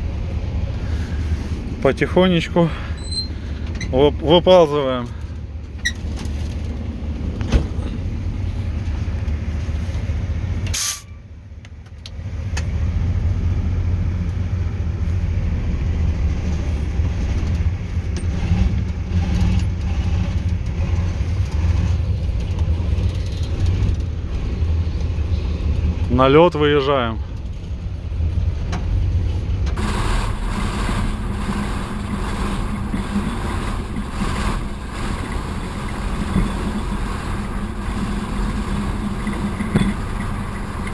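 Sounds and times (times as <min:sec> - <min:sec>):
diesel locomotive engine pulling: 0:00.0 - 0:40.9
short sharp burst of noise: 0:10.7 - 0:11.2.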